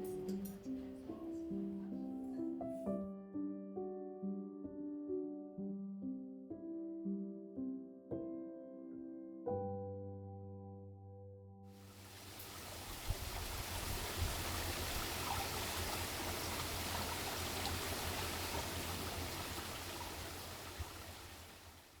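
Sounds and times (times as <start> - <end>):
water flowing: 11.8 - 22.0.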